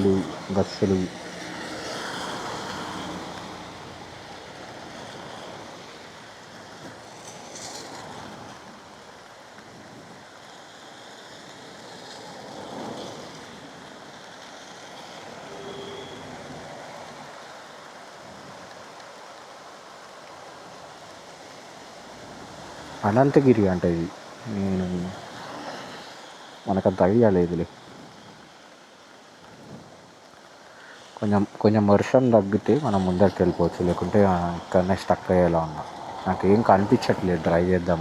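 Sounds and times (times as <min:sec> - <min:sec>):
heavy rain hissing: 0:00.0 - 0:06.6, 0:12.8 - 0:18.5, 0:21.9 - 0:38.0
traffic on wet road: 0:00.0 - 0:38.0.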